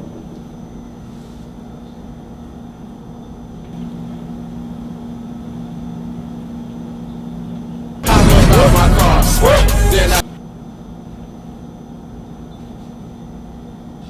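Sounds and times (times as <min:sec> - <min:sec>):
low mechanical hum: 0:00.0 - 0:14.0
low rumble: 0:08.0 - 0:10.2.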